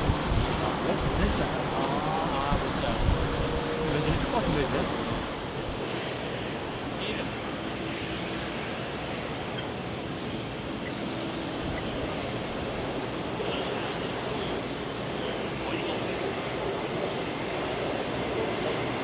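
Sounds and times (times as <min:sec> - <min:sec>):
wind on microphone: 0:00.0 - 0:06.8
jet engines rushing: 0:00.0 - 0:19.0.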